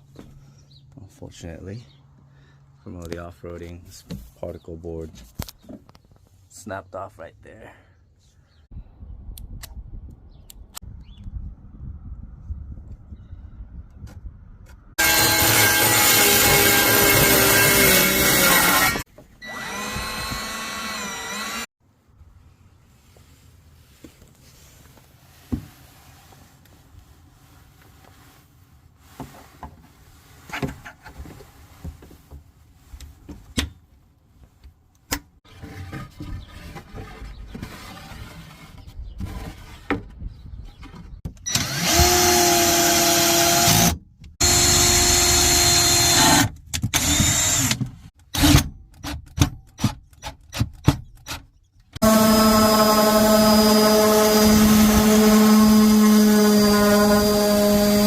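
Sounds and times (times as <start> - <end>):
power drill whining: 15.0 - 21.7, 41.4 - 47.8, 52.0 - 58.0.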